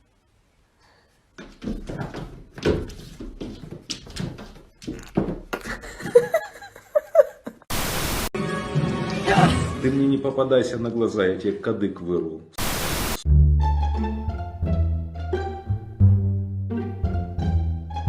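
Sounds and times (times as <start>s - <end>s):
irregular knocks and thumps: 1.4s - 6.4s.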